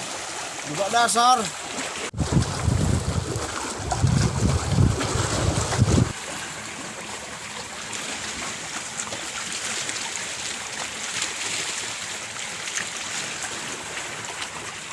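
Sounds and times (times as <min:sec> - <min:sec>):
small water splashes: 0:00.0 - 0:14.9
water trickling and lapping: 0:00.0 - 0:14.9
wind gust on microphone: 0:02.1 - 0:06.1.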